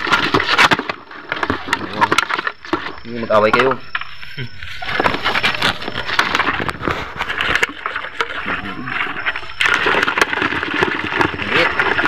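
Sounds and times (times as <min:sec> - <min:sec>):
crabs scrabbling in plastic bucket: 0:00.0 - 0:12.0.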